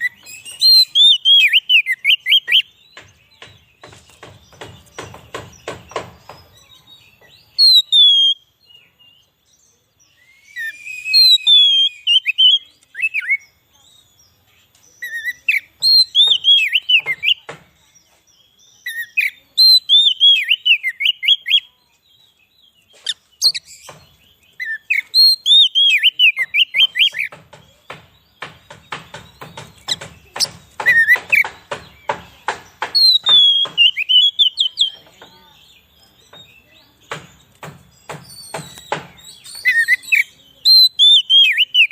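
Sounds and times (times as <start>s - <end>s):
bird singing whistled phrases: 0.0s - 2.8s, 7.5s - 8.9s, 10.0s - 14.2s, 15.0s - 17.4s, 18.8s - 22.4s, 24.5s - 27.3s, 33.0s - 35.0s, 38.2s - 41.9s.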